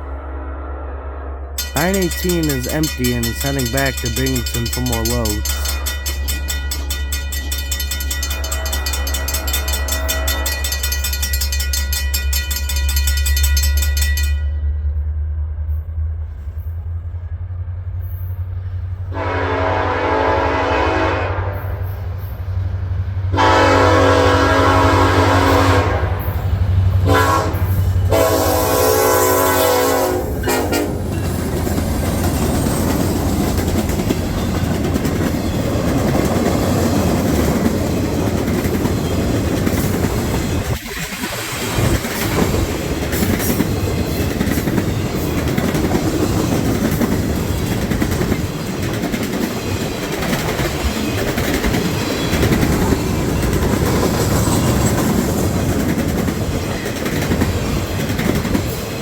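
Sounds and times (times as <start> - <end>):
locomotive horn: 0.0 - 5.8, 8.4 - 10.8, 19.1 - 21.8, 23.3 - 26.4, 27.0 - 31.0
train rumble and wheel clatter: 1.6 - 59.0.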